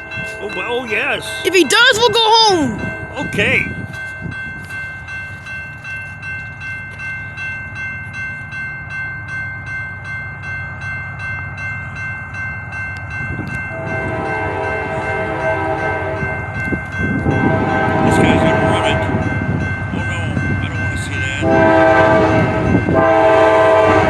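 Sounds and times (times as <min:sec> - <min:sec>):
crossing signal bell ringing: 0:00.0 - 0:24.0
freight train rumble: 0:00.0 - 0:24.0
locomotive horn: 0:13.7 - 0:16.5, 0:17.2 - 0:19.2, 0:21.4 - 0:24.0.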